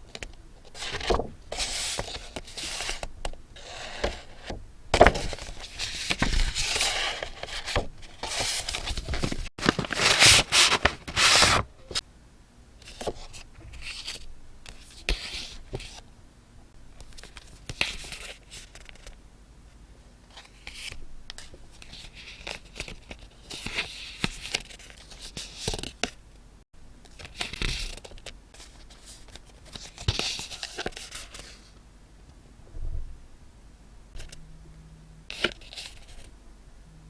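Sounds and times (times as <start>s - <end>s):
paper tearing and rustling: 5.0s - 11.7s.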